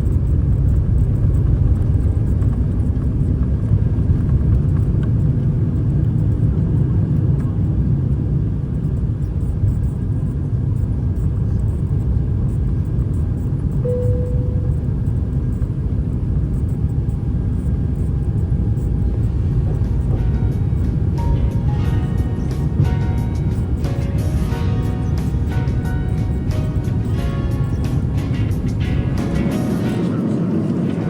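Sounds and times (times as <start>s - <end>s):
aircraft cabin engine rumble: 0.0s - 31.0s
steady tone: 13.8s - 15.7s, 19.0s - 31.0s.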